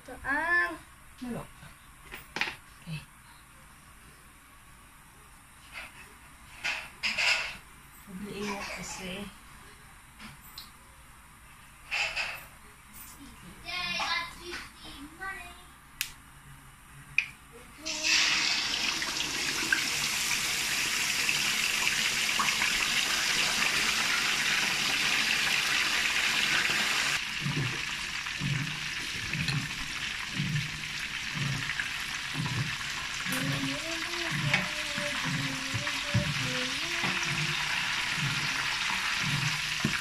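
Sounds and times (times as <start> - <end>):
chicken sizzling in hot oil: 17.8 - 40.0.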